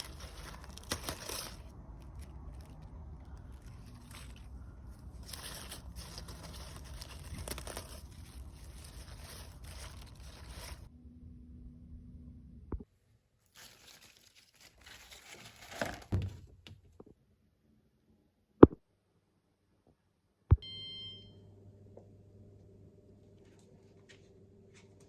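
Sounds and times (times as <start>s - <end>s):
packaging rustling and crinkling: 0.0s - 10.9s, 13.5s - 16.3s
appliance electric hum: 0.0s - 13.1s, 20.5s - 25.0s.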